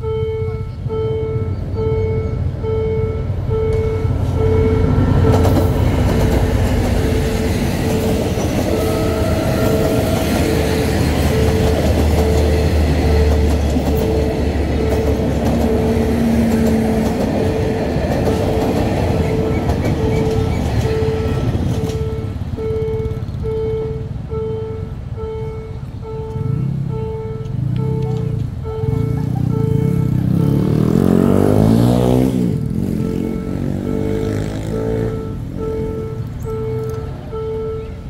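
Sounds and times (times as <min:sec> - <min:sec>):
train rumbling and clattering: 0:00.0 - 0:38.0
level crossing bell ringing: 0:07.1 - 0:30.8.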